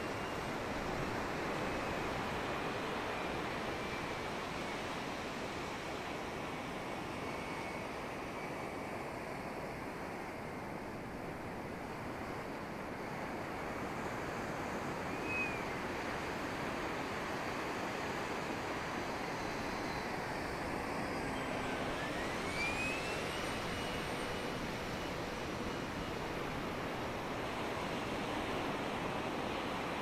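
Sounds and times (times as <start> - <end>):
electric ducted fan whine: 0.0 - 30.0.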